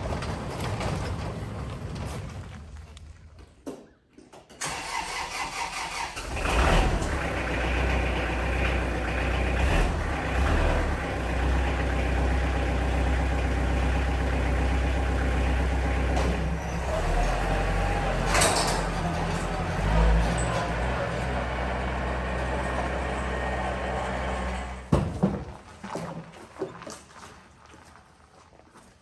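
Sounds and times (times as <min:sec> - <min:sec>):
vehicle engine starting: 0:04.6 - 0:24.9.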